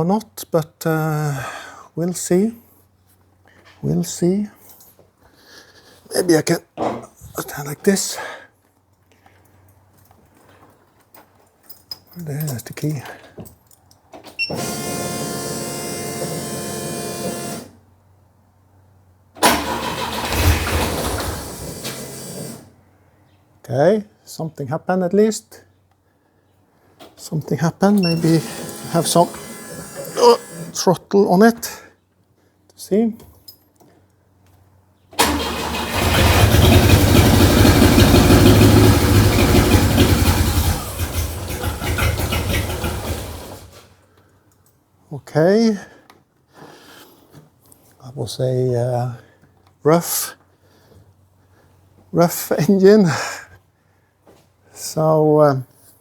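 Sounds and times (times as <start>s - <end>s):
car engine cranking and firing: 19.4s - 22.6s, 35.2s - 43.9s.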